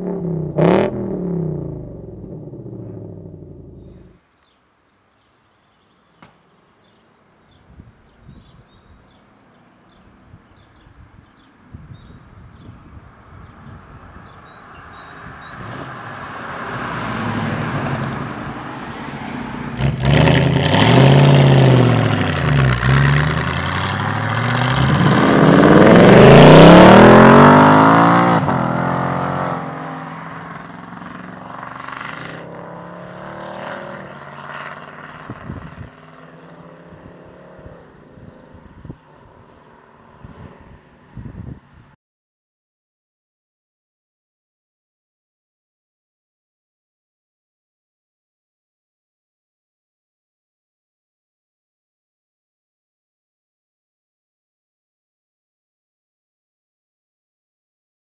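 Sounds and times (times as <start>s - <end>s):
car engine passing by: 13.0s - 41.2s.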